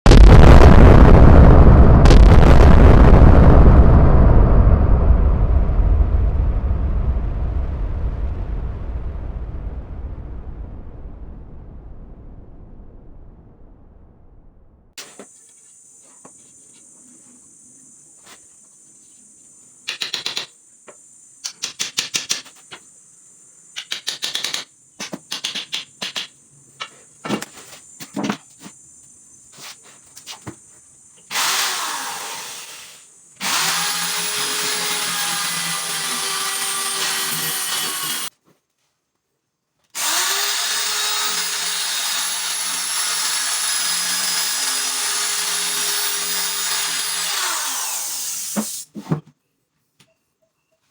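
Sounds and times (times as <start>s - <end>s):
woodworking power tool running: 31.3s - 38.3s, 40.0s - 48.8s.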